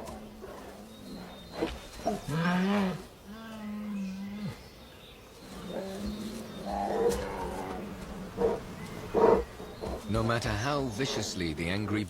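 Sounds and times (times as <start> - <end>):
bear calling: 5.5 - 10.1.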